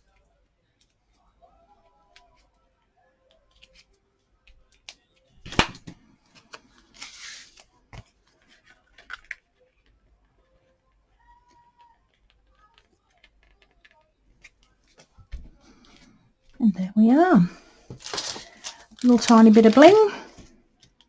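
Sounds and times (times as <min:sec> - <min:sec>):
paper rustling: 0:17.1 - 0:20.4.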